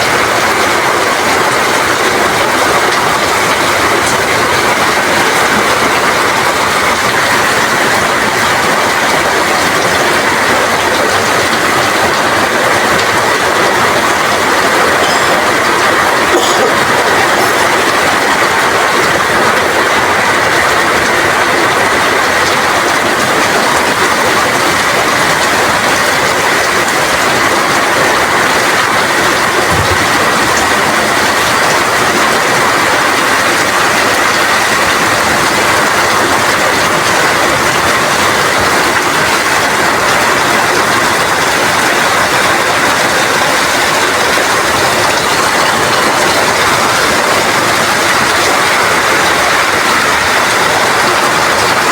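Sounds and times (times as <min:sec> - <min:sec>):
rain falling: 0:00.0 - 0:51.9.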